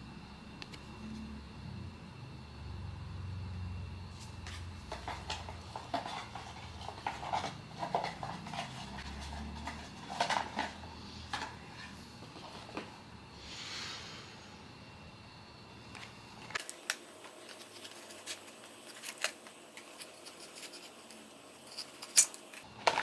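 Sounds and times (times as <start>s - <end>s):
packaging crinkles and clicks: 16.5s - 23.0s
rustling scrape: 17.4s - 22.6s.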